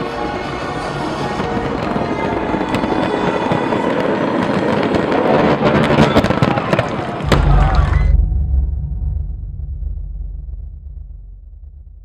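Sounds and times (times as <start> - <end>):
music: 0.0 - 4.3, 7.2 - 12.0
fireworks bursting and crackling: 0.0 - 8.2.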